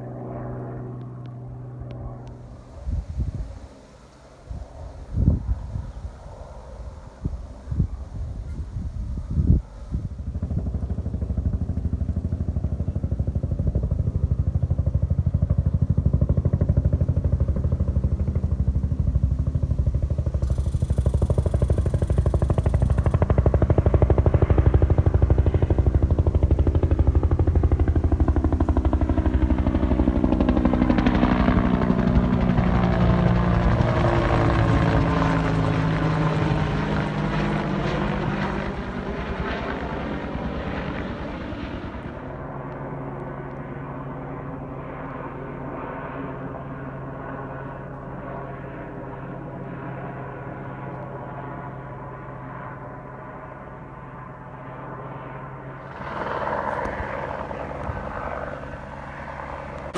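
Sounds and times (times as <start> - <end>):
helicopter rotor chop: 10.0 - 42.4, 55.6 - 59.9.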